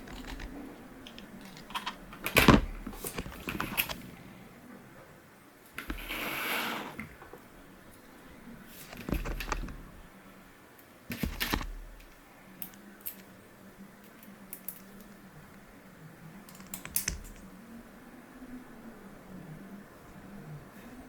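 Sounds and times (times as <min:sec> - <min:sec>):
hard plastic clicks and taps: 0:16.5 - 0:17.4.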